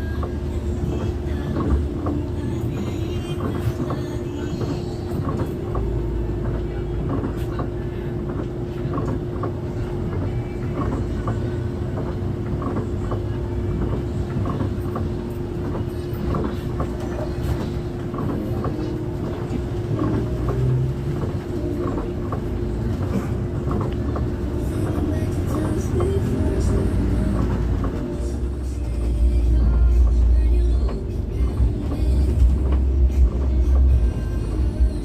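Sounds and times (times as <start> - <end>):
bus road and engine rumble: 0.0 - 35.0
constant hum: 0.0 - 35.0.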